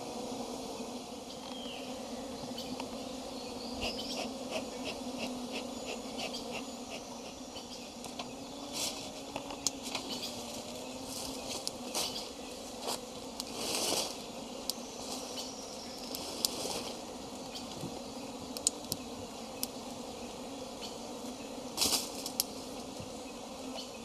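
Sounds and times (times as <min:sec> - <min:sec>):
bees buzzing: 0:00.0 - 0:24.0.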